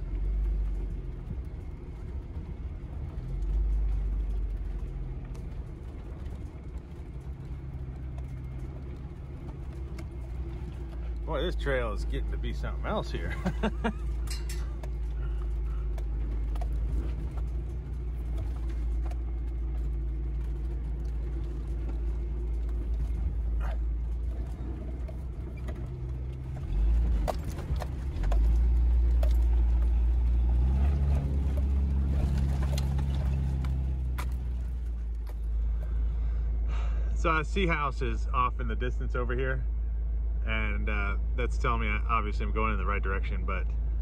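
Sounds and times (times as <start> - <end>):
four-cylinder engine running: 0.0 - 44.0
knocks and rattles: 12.0 - 36.0.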